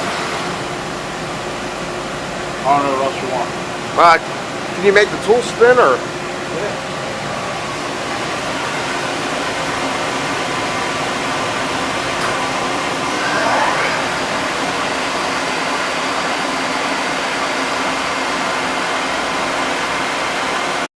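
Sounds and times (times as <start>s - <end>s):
machine spindle whirring: 12.0s - 16.1s
faint rising whine: 12.2s - 16.2s.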